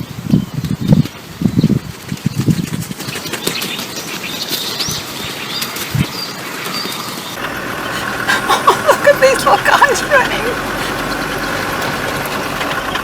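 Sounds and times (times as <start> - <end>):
birds flapping wings: 7.4 - 13.0.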